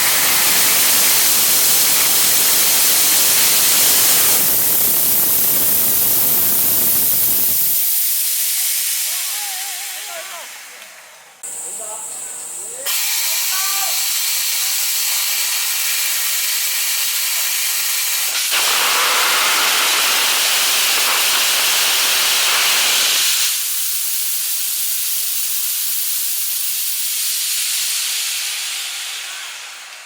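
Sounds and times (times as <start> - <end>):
rocket motor rushing roar: 0.0 - 11.2
high hiss of oxygen flow: 0.0 - 30.0.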